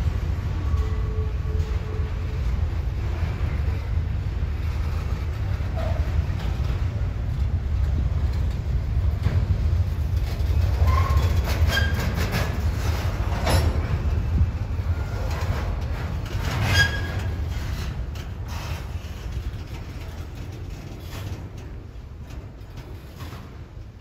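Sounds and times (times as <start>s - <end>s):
freight train rumbling on rails: 0.0s - 24.0s
train clank: 0.0s - 24.0s
train wheel squeals: 0.6s - 2.4s, 4.6s - 6.5s, 10.5s - 14.0s, 14.8s - 19.4s.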